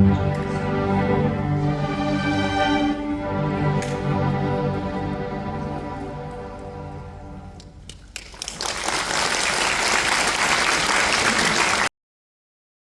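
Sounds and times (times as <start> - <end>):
orchestra chord: 0.0 - 7.8
audience applause: 8.2 - 11.9.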